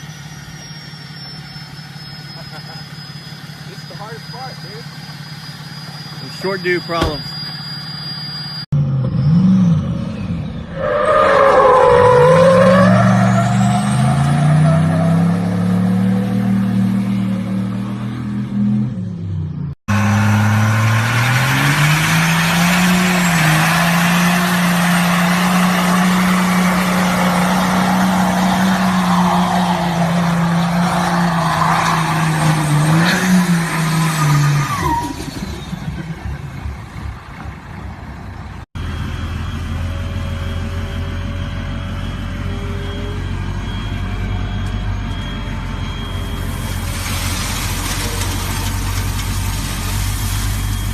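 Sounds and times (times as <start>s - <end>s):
truck engine revving: 0.0s - 50.9s.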